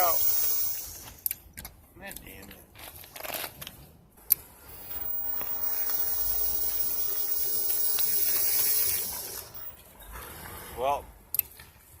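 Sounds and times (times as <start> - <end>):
hissing mechanical drive noise: 0.0 - 1.2, 4.7 - 9.7.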